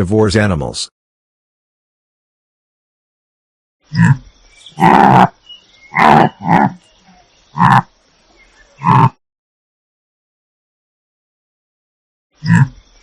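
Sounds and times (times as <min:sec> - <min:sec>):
large animal calling: 0:03.8 - 0:08.0, 0:08.7 - 0:09.2, 0:12.4 - 0:12.9.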